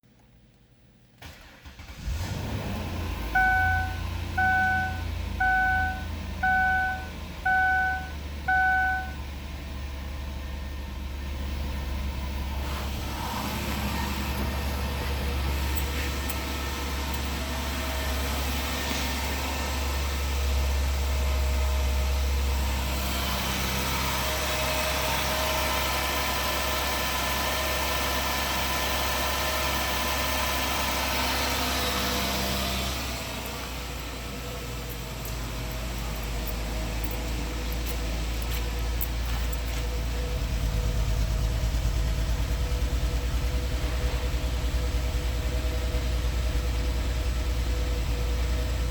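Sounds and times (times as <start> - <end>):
car engine starting and idling: 0.1 - 48.9
warning chime beeping: 3.4 - 9.2.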